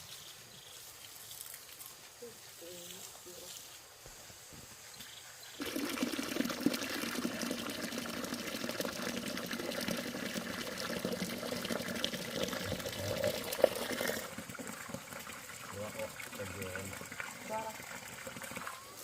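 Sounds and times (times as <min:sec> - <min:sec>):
water pouring: 0:05.6 - 0:19.0.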